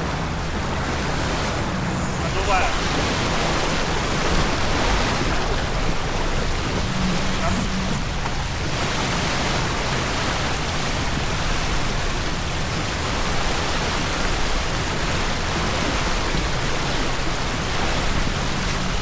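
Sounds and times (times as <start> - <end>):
wind and water rushing: 0.0 - 19.0.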